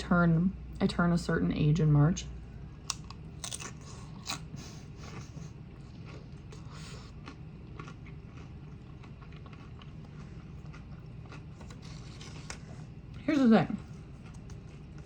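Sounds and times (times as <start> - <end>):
low hum: 0.0 - 15.0
person chewing food: 2.9 - 13.2, 13.8 - 15.0.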